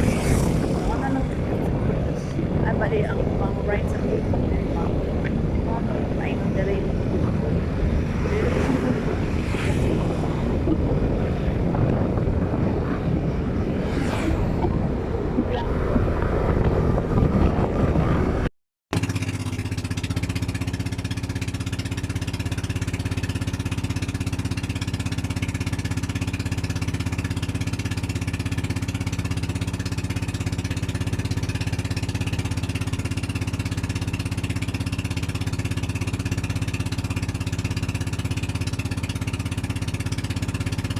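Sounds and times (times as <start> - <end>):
wind noise: 0.0 - 18.5
vehicle engine rumbling: 0.0 - 40.9.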